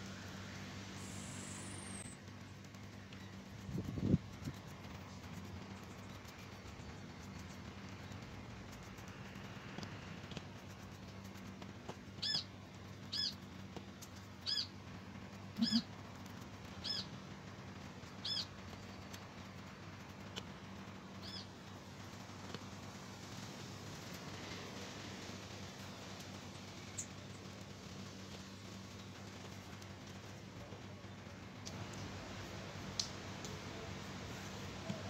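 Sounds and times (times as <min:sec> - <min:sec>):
faint steady hum: 0:00.0 - 0:35.0
bird chirping: 0:01.0 - 0:02.2, 0:12.2 - 0:12.5, 0:13.1 - 0:13.4, 0:14.4 - 0:14.7, 0:15.6 - 0:15.8, 0:16.8 - 0:17.1, 0:18.2 - 0:19.0.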